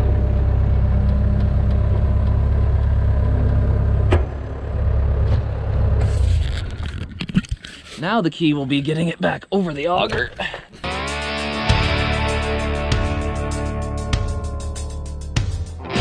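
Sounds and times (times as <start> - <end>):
vehicle engine rumbling: 0.0 - 8.1
clicks and clatters: 6.3 - 7.9.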